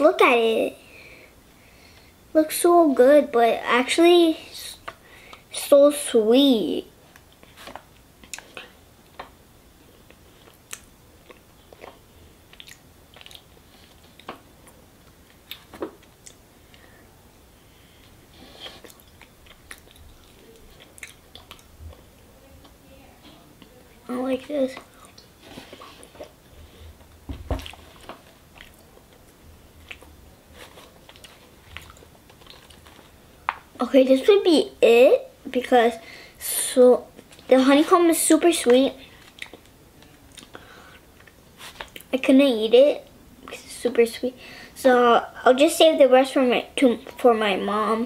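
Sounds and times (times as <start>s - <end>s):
child chewing with wet smacking: 7.0s - 9.4s, 10.0s - 17.0s, 17.9s - 33.8s, 39.0s - 42.1s
lips and tongue smacking while chewing: 10.4s - 14.4s, 18.6s - 22.0s.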